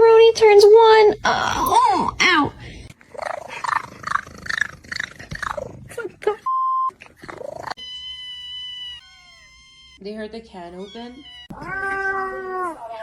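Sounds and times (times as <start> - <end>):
censor bleep: 6.5 - 6.9
cat vocalising: 10.9 - 13.0.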